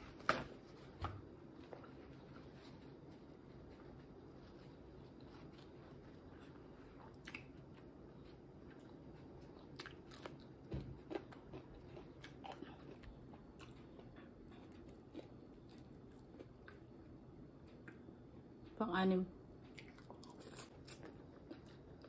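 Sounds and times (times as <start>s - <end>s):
chewing with wet clicks and crunches: 4.5s - 18.8s, 19.5s - 22.0s.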